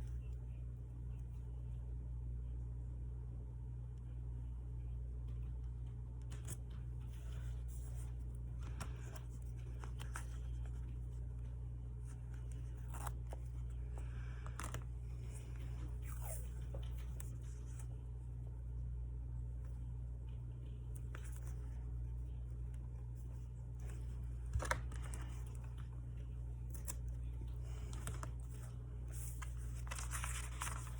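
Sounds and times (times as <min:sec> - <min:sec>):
steady low hum: 0:00.0 - 0:30.9
paper rustling: 0:06.3 - 0:18.0, 0:20.6 - 0:30.9.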